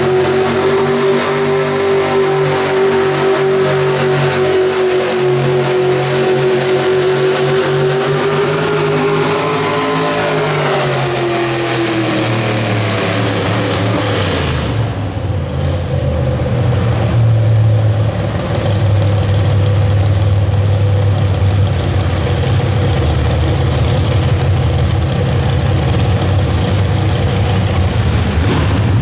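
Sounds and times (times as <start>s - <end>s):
truck engine at full throttle: 0.0s - 29.0s.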